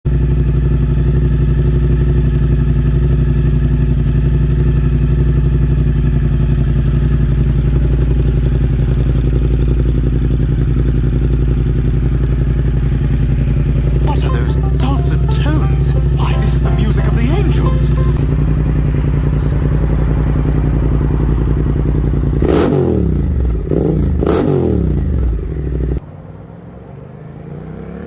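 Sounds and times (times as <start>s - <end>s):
motorcycle engine idling: 0.1s - 26.0s.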